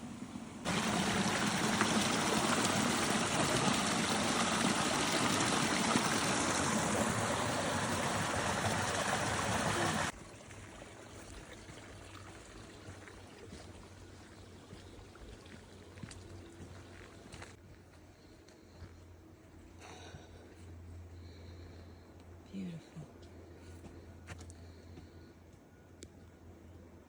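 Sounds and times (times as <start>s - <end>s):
stream water rushing: 0.6s - 10.1s.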